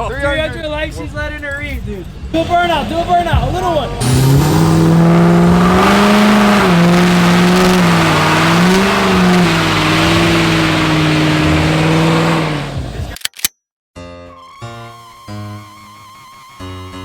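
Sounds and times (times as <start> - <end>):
truck engine at high revs: 2.7 - 13.1
spinning tyres hissing: 3.8 - 12.9
music: 14.0 - 17.0.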